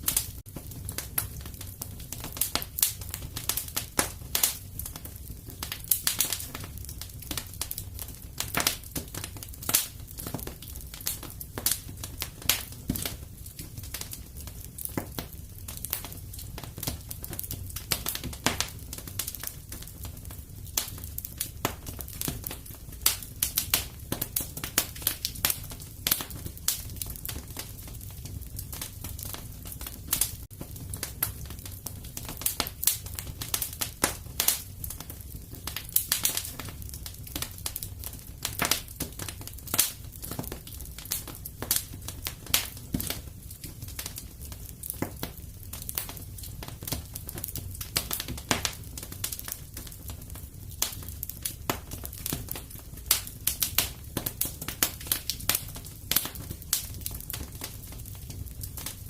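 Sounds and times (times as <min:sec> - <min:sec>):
fireplace fire crackling: 0:00.0 - 0:59.0.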